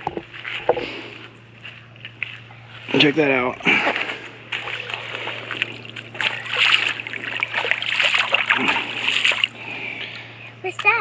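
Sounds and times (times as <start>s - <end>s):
shallow water splashing: 3.6s - 9.7s.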